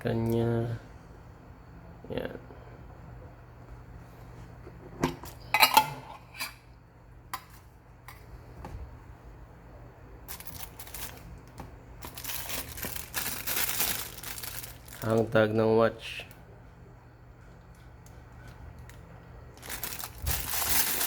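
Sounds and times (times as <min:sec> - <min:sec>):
plastic wrapping crinkling: 0:10.3 - 0:15.4, 0:18.2 - 0:21.0
packaging pieces clicking: 0:19.6 - 0:21.0.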